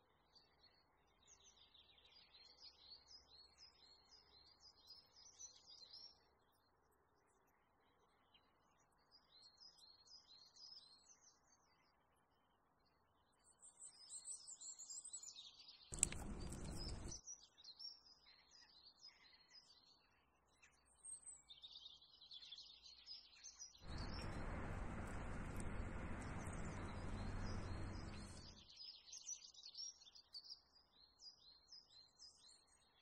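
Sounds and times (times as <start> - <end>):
small birds chirping: 15.7 - 17.8, 23.8 - 31.6
click: 15.9 - 17.1, 23.9 - 28.5.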